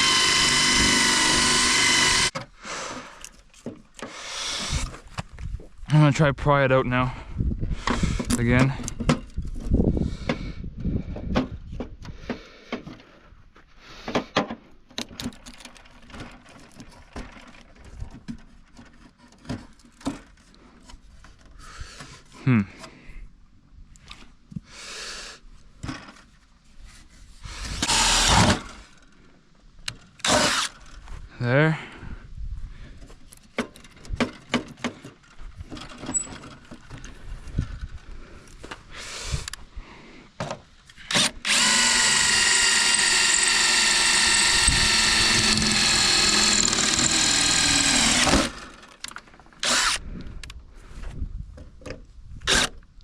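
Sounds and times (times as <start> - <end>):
tools and plastic parts clicking: 14.2 - 21.6, 40.4 - 50.6.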